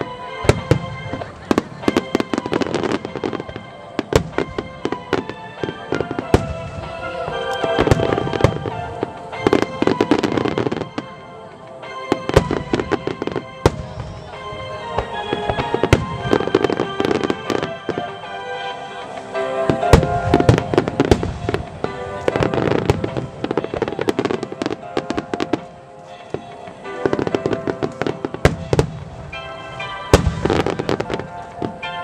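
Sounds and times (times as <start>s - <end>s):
firework bursts and booms: 0.0s - 32.0s
music: 0.0s - 32.0s.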